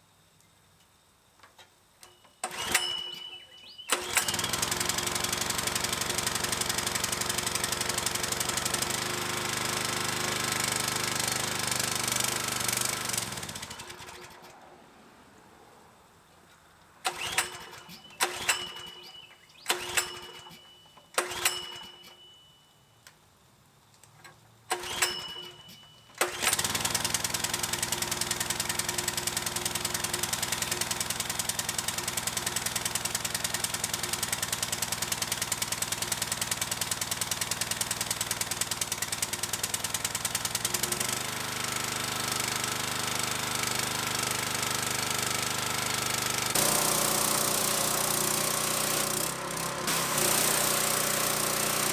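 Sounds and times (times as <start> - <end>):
pull-start cord pulls: 2.0 - 14.6, 17.0 - 22.3, 24.0 - 51.9
pressure washer engine running: 3.9 - 14.1, 26.4 - 51.9.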